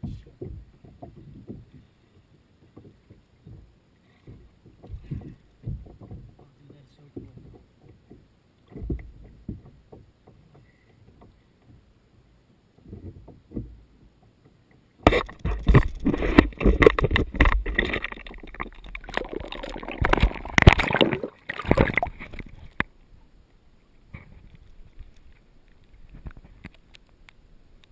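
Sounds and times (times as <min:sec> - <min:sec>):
soft knocks: 0:00.0 - 0:01.9, 0:02.6 - 0:11.8
water splashing: 0:15.0 - 0:23.0.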